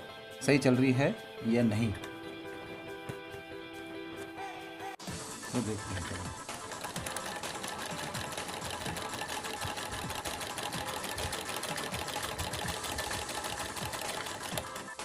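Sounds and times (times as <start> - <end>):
sewing machine stitching: 5.8 - 15.0.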